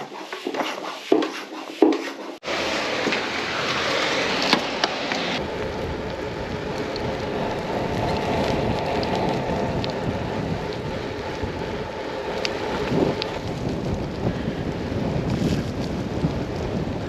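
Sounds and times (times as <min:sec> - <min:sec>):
rain and wind rushing: 0:02.4 - 0:17.0
faint raindrop ticks: 0:05.6 - 0:11.5, 0:12.3 - 0:14.2.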